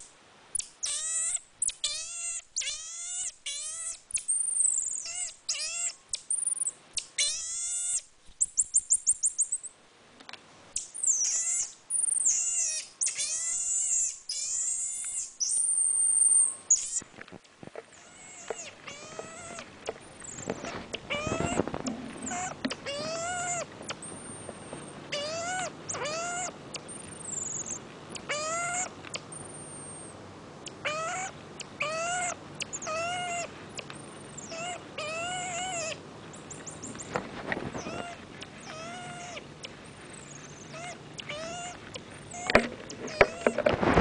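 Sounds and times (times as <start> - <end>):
marmoset meow-like calls: 0.6 - 6.0, 7.2 - 8.1, 11.0 - 17.0, 18.0 - 30.0, 30.8 - 33.5, 34.4 - 36.0, 37.7 - 39.5, 40.2 - 43.5.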